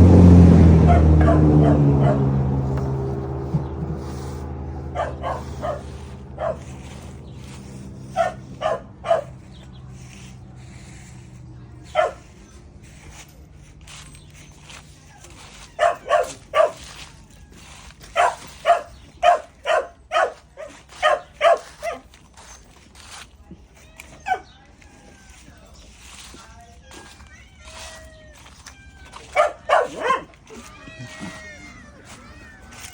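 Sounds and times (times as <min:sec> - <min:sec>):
low engine hum: 0:00.0 - 0:32.9
dog barking: 0:00.8 - 0:02.4, 0:04.8 - 0:09.5, 0:11.8 - 0:12.4, 0:15.3 - 0:17.2, 0:18.1 - 0:22.2, 0:24.2 - 0:24.5, 0:29.1 - 0:30.7.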